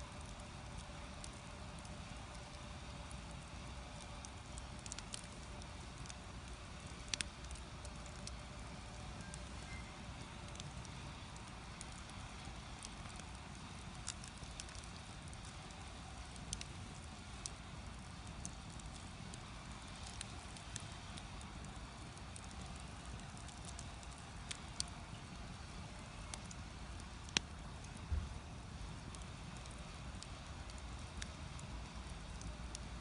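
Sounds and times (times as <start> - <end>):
firewood burning with crackles and pops: 0.0 - 33.0.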